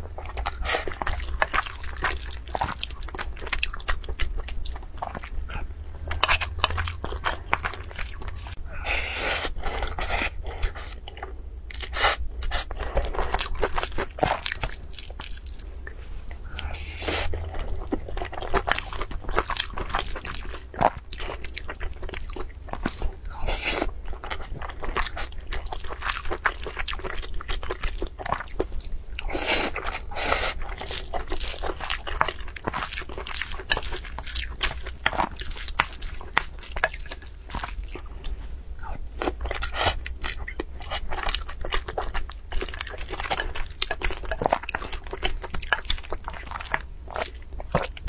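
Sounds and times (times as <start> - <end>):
chewing fried rice: 0.0 - 48.0
steady low hum: 0.0 - 48.0.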